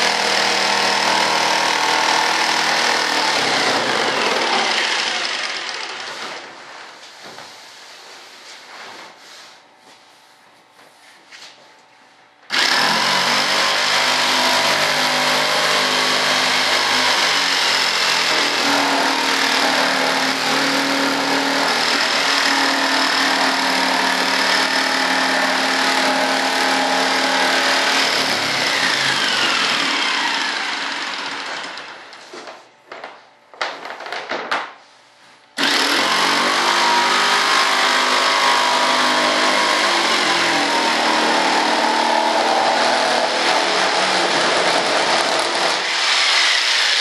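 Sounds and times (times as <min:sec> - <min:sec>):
jigsaw cutting wood: 0:00.0 - 0:06.4, 0:12.5 - 0:32.0, 0:35.6 - 0:47.0.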